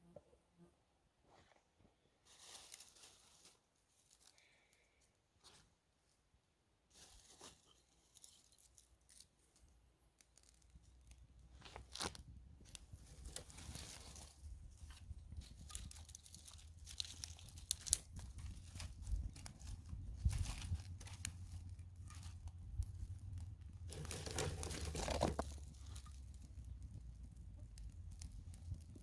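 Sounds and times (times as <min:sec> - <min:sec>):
campfire crackles and snaps: 0:09.1 - 0:29.0
low fire rumble: 0:10.8 - 0:29.0.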